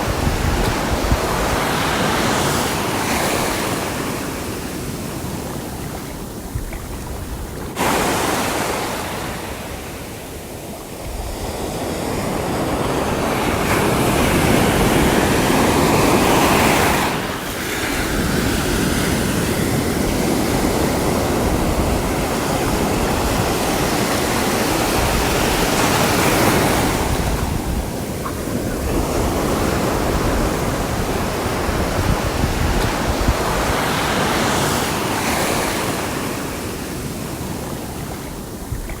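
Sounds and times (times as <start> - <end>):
sea waves breaking: 0.0 - 39.0
wind rumbling on microphone: 0.0 - 39.0.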